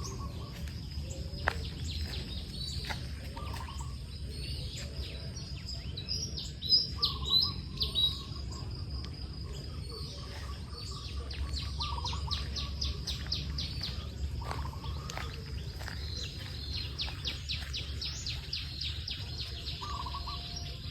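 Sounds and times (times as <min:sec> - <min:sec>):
birds chirping and trilling: 0:00.0 - 0:20.9
lower bird calls: 0:00.0 - 0:20.9
steady low rumble: 0:00.0 - 0:20.9.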